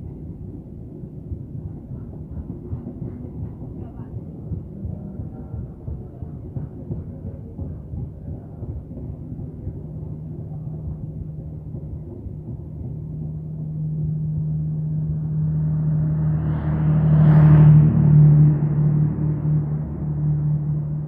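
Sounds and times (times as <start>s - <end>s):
low droning hum: 0.0s - 21.0s
train wheels rumbling on rails: 0.0s - 21.0s
rushing noise of passing coach: 13.0s - 21.0s.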